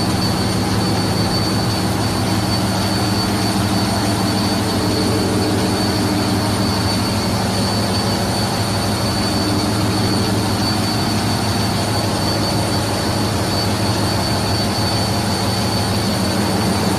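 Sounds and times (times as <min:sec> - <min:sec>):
gas engine running: 0:00.0 - 0:16.9
turbocharger whine: 0:00.0 - 0:16.9.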